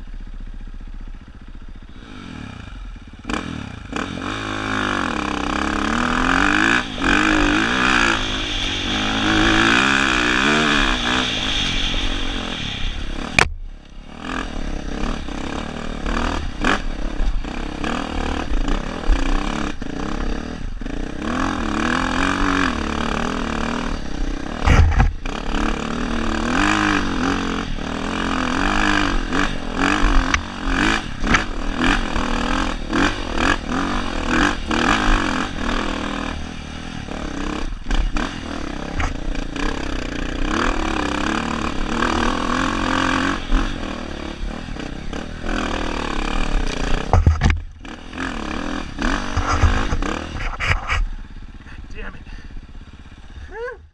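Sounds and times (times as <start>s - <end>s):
dirt bike engine revving: 1.2s - 53.7s
clattering knocks of bike: 24.6s - 25.3s, 46.6s - 47.8s.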